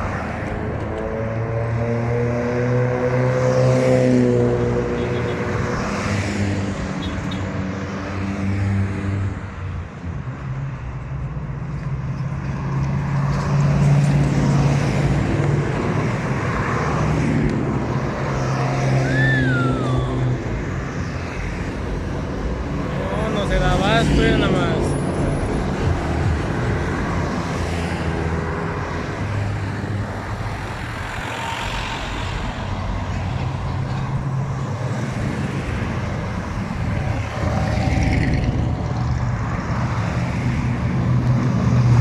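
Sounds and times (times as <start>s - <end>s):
trucks driving past: 11.7s - 42.0s.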